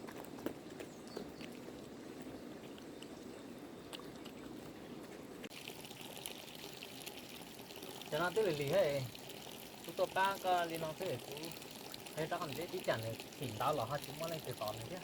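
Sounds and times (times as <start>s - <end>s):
trickling water: 5.5s - 15.0s.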